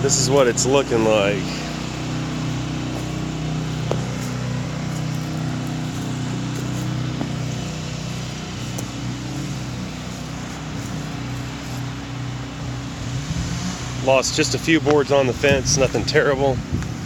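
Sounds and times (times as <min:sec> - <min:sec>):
generator engine running: 0:00.0 - 0:17.0.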